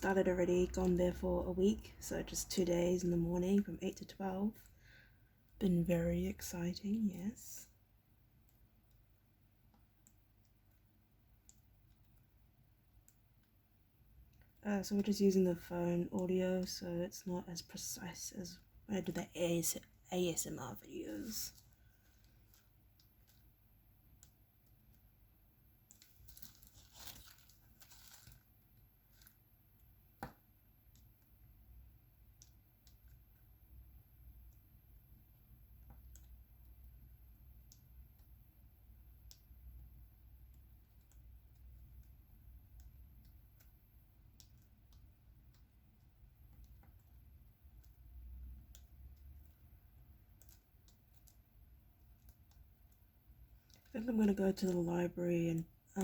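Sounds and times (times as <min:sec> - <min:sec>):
soft crinkling rustle: 0:20.7 - 0:25.1, 0:25.8 - 0:29.9, 0:44.3 - 0:56.0.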